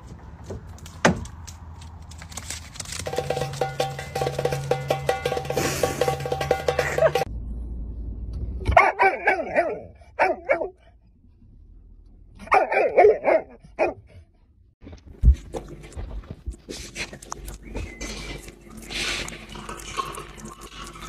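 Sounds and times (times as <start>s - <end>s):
dog barking: 8.7s - 10.9s, 12.4s - 14.2s.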